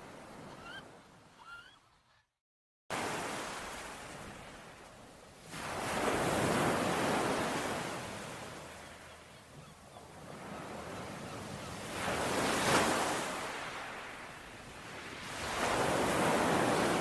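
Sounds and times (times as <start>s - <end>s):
ocean surf washing ashore: 2.9s - 8.8s, 10.2s - 17.0s.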